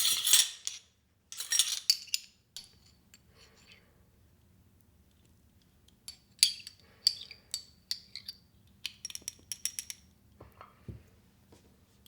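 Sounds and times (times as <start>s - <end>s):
kitchenware clinking: 0.0s - 0.8s, 1.4s - 2.3s.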